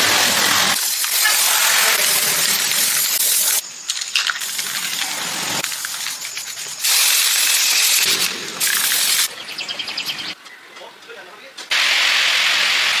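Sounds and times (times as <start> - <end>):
bursts of hissing air: 0.0 - 3.6, 4.4 - 9.3, 11.7 - 13.0.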